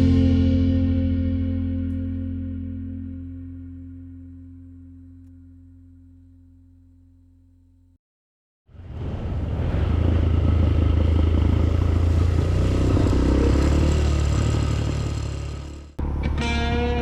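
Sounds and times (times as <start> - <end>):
guitar music: 0.0 - 6.4, 16.0 - 17.0
motorcycle engine running: 8.8 - 17.0.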